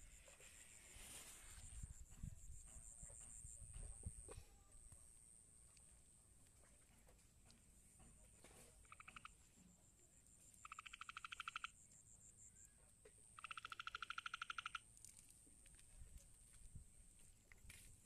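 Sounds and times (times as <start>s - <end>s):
animal pulsed trill calls: 8.8s - 9.4s, 10.6s - 11.8s, 13.4s - 14.8s.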